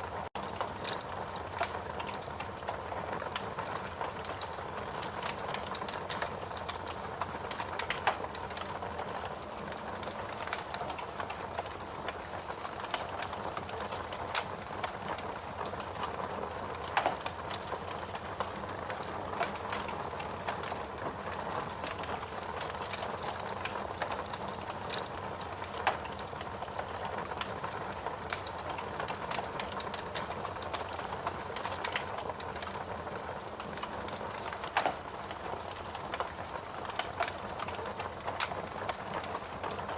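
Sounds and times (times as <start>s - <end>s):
log fire crackling: 0.0s - 39.9s
sharp popping of fire: 28.2s - 39.9s.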